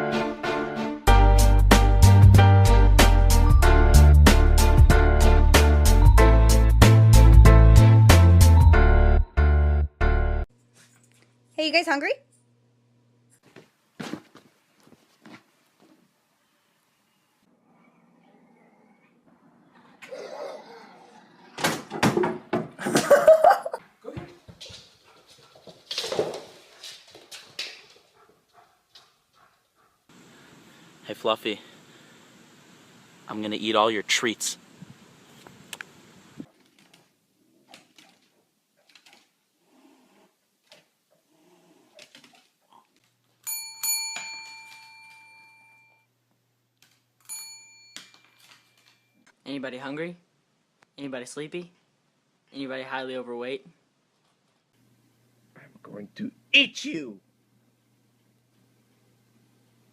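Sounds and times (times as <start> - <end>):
small metal bell ringing: 43.4 - 46.1, 47.2 - 49.2.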